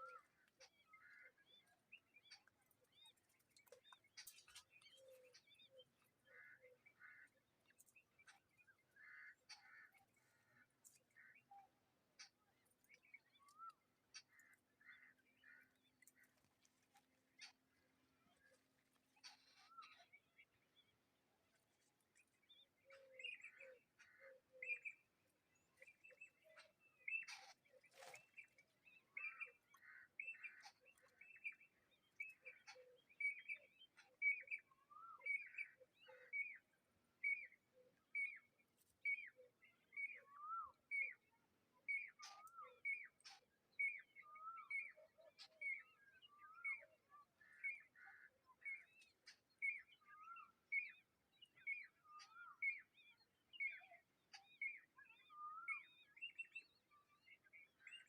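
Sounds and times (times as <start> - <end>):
bird chirping calls: 22.6 - 36.6.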